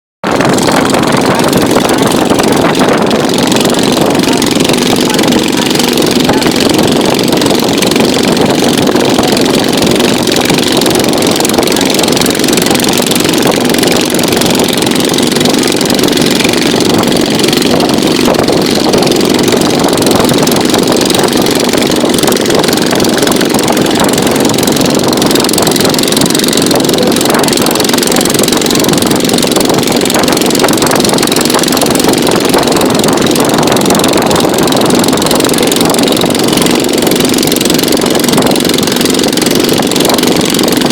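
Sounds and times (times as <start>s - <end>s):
boat engine running: 0.2s - 40.9s.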